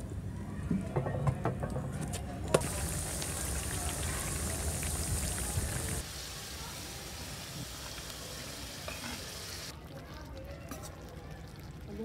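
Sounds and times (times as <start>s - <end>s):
wood fire crackling: 2.6s - 8.6s
potatoes sizzling in hot oil: 2.6s - 9.7s.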